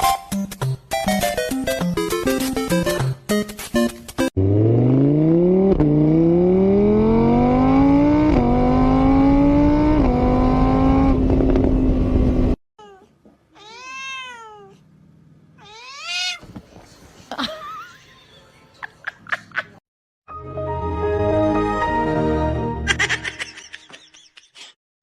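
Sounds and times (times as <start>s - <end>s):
engine accelerating through gears: 4.4s - 12.6s
cat meowing: 12.8s - 14.8s, 15.6s - 16.5s.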